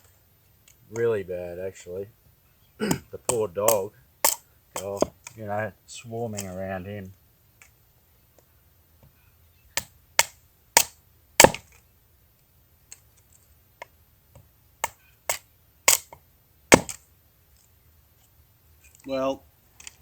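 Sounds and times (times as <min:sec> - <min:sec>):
wood being chopped: 0:02.8 - 0:05.3, 0:09.8 - 0:11.8, 0:14.8 - 0:17.0.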